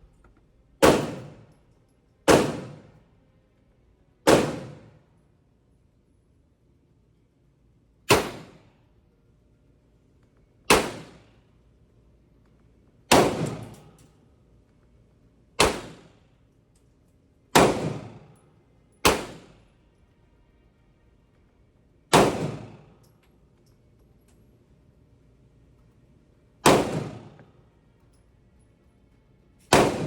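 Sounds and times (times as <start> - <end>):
pistol shots: 0.8 - 1.6, 2.3 - 3.0, 4.3 - 5.0, 8.1 - 8.7, 10.7 - 11.3, 13.1 - 14.0, 15.6 - 16.2, 17.5 - 18.4, 19.0 - 19.7, 22.1 - 23.0, 26.6 - 27.5, 29.7 - 30.0.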